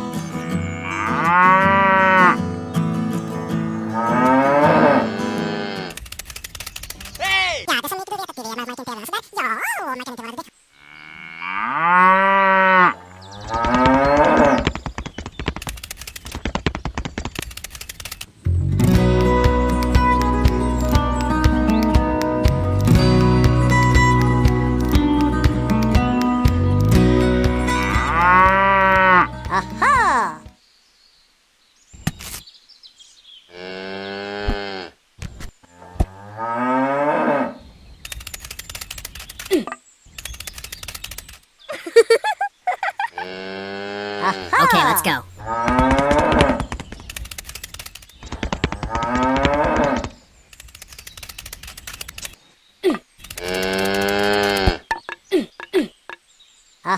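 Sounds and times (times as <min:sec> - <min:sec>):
cow mooing: 0:00.8 - 0:02.4, 0:03.9 - 0:06.0, 0:10.8 - 0:14.6, 0:27.8 - 0:29.3, 0:43.2 - 0:46.6
rapid ticking: 0:13.6 - 0:18.3, 0:45.7 - 0:52.4
rapid clicking and rattling: 0:14.6 - 0:18.3, 0:45.7 - 0:52.4.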